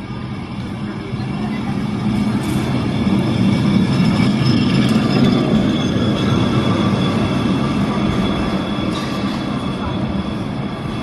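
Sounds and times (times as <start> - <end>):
tram rumbling on rails: 0.0 - 11.0.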